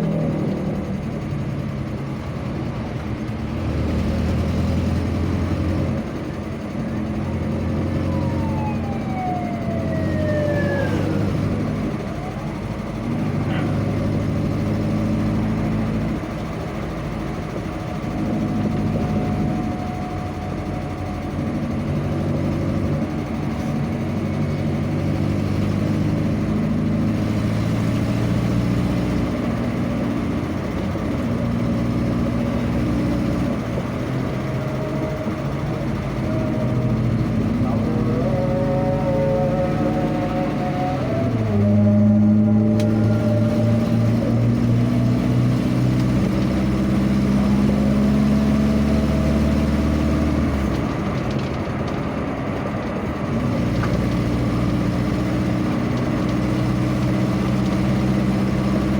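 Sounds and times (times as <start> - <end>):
road noise: 0.0 - 58.9
vehicle engine running: 0.0 - 58.9
tone gliding downward: 7.2 - 13.3, 29.1 - 49.8.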